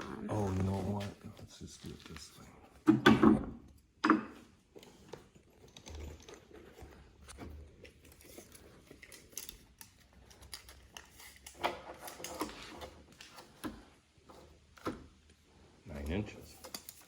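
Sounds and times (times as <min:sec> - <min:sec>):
handling clicks and scrapes: 0:04.7 - 0:13.9, 0:15.9 - 0:17.0.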